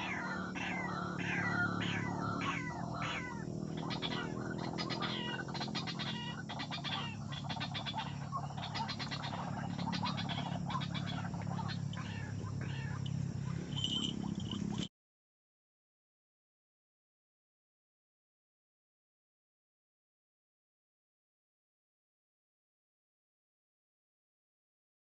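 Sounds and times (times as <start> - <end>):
steady low hum: 0.0 - 14.9
waterhens croaking calls: 0.0 - 14.9.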